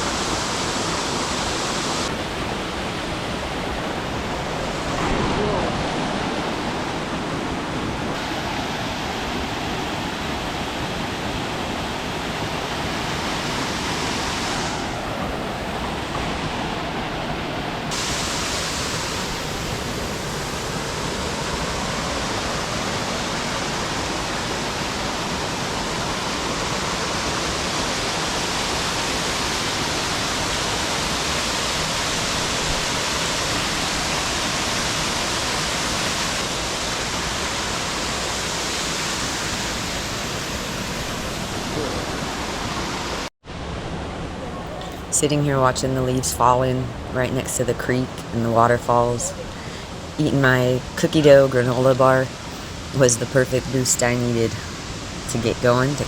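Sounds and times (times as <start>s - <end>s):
waterfall rushing: 0.0s - 45.3s.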